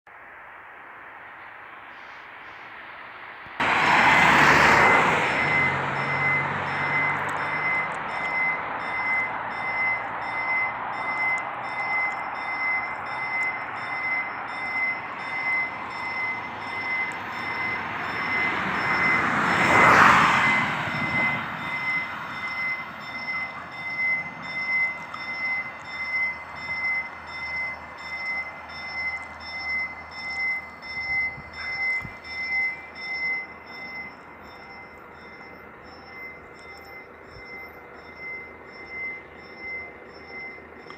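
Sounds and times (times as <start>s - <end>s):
vehicle driving past: 3.6s - 28.1s
level crossing warning bell: 4.2s - 40.9s.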